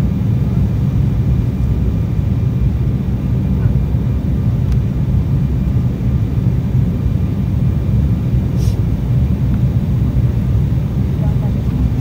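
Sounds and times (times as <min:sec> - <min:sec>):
airliner cabin engine rumble: 0:00.0 - 0:12.0
short hiss: 0:08.6 - 0:08.8.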